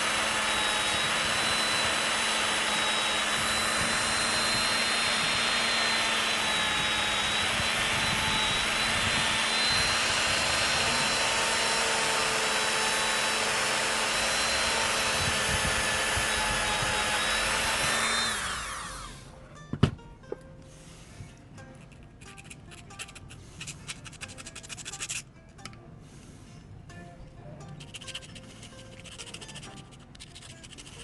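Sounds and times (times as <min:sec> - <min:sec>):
tool spinning down: 0:00.0 - 0:19.2
rotary grinding tool running: 0:00.0 - 0:19.3, 0:27.8 - 0:31.0.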